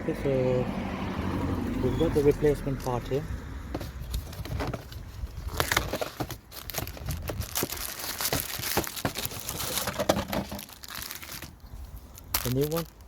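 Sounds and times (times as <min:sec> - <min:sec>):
packaging crinkling and tearing: 0:04.1 - 0:13.0.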